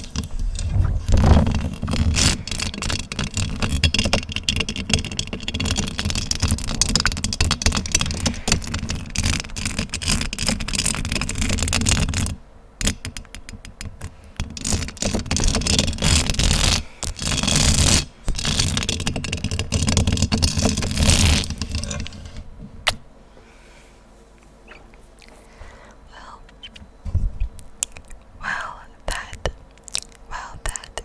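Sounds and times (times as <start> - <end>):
scratching on microphone: 0.0 - 12.4, 14.6 - 22.5.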